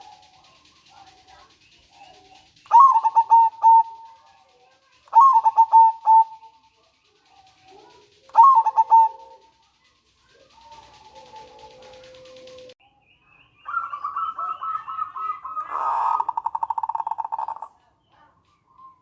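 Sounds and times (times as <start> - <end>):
dove cooing: 0.0 - 12.8, 13.7 - 18.3.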